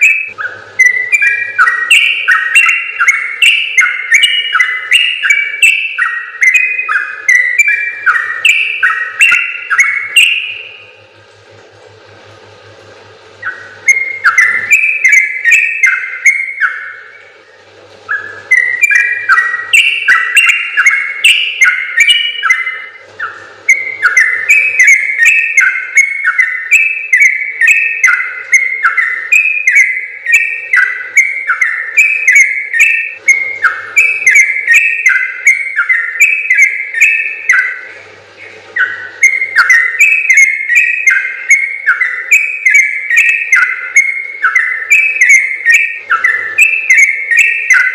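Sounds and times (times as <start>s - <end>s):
bulbul chattering song: 0.0s - 11.2s, 12.6s - 47.9s.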